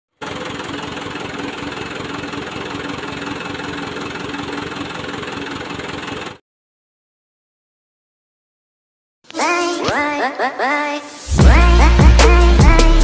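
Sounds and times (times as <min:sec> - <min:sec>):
engine idling: 0:00.1 - 0:06.4.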